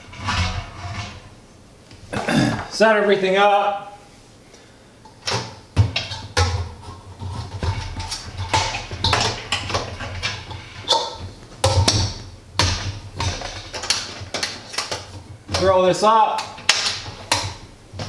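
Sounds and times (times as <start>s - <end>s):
metal kettle parts clanking: 6.0s - 15.8s.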